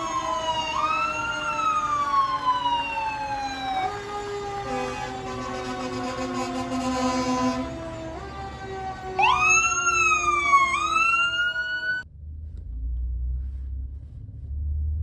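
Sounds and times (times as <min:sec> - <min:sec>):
fire truck siren sweeping: 0:00.0 - 0:12.0
fire truck horn blast: 0:03.9 - 0:10.1
low rumble: 0:12.0 - 0:15.0.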